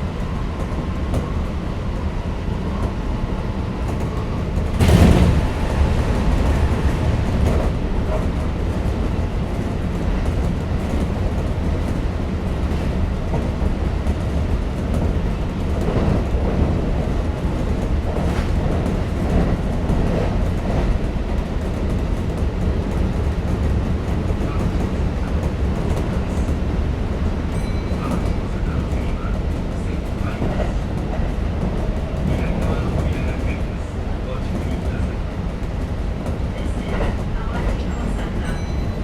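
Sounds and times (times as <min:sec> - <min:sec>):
train wheels rumbling on rails: 0:00.0 - 0:39.0
track knocks: 0:03.8 - 0:12.1.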